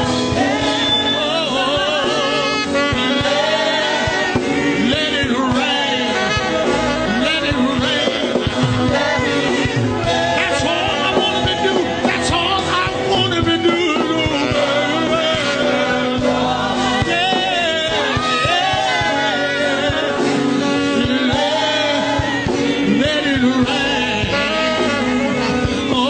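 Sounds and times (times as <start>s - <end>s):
church band playing gospel: 0.0s - 26.0s
people singing: 0.0s - 26.0s.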